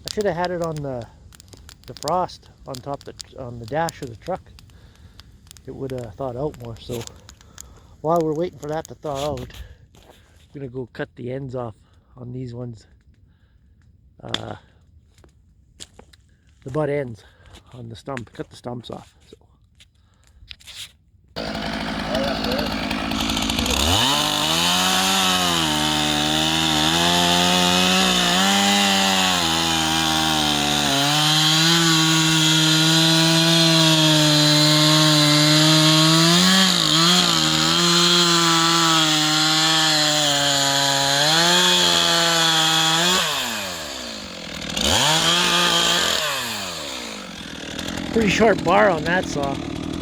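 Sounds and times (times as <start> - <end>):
chainsaw cutting log: 0.0 - 9.5, 21.4 - 50.0.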